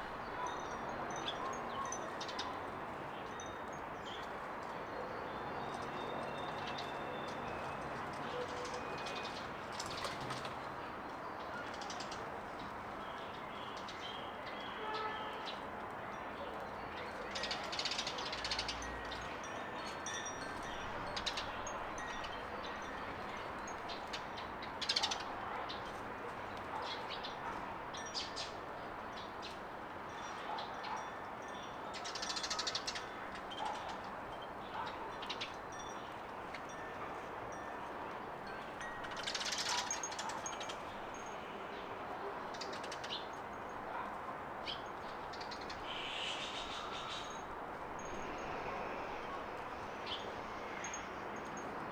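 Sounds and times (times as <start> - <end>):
small birds chirping: 44.6 - 48.6
steady background hiss: 45.3 - 51.9.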